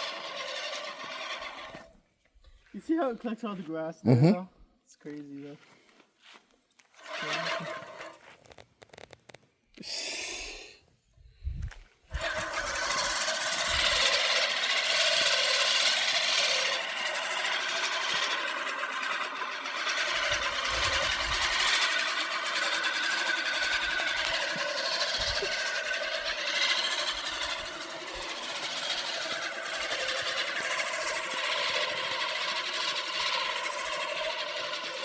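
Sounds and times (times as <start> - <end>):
lawn mower running: 0.0 - 2.0, 6.8 - 9.2, 12.1 - 35.0.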